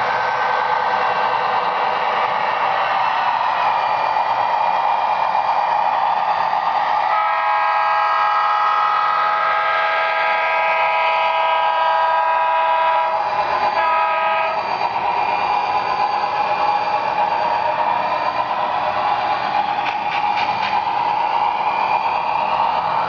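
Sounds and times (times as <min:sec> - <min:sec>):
model locomotive horn: 0:07.1 - 0:14.6.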